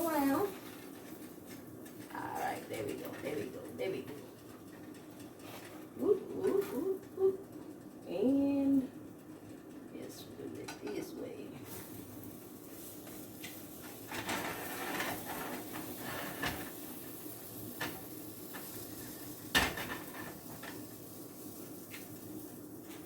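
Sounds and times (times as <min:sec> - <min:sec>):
spatula scraping frying pan: 0:12.8 - 0:19.3.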